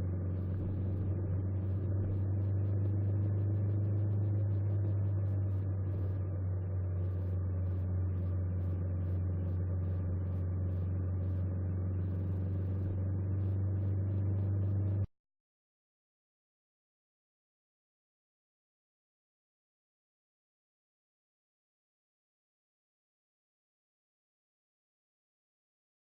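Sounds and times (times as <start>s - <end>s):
faint engine ticking: 0.0s - 15.1s
motorcycle engine running: 0.0s - 15.1s.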